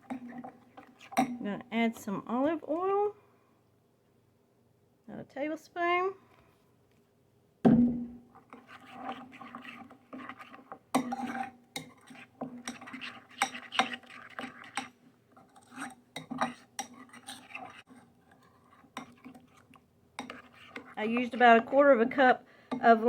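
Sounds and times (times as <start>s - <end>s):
utensil scraping a bowl: 0.0s - 1.4s, 8.3s - 23.0s.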